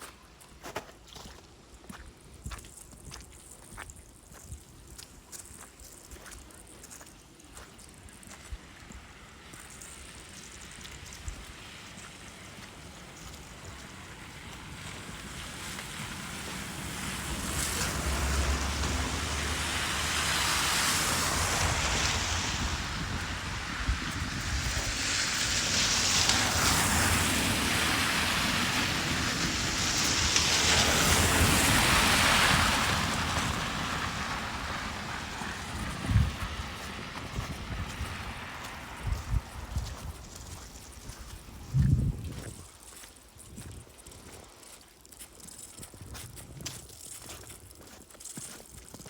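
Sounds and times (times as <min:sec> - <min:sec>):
wind buffeting microphone: 0:11.1 - 0:44.4
gusting snowstorm wind: 0:11.5 - 0:42.7.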